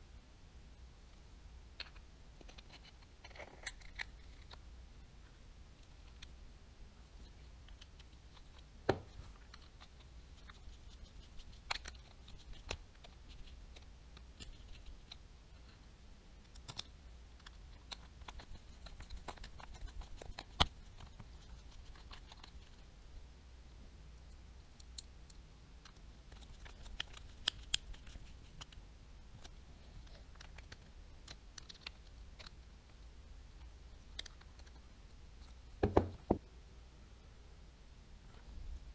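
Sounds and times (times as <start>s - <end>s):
faint low hum: 0.0s - 38.9s
sharp knocks: 35.8s - 36.4s.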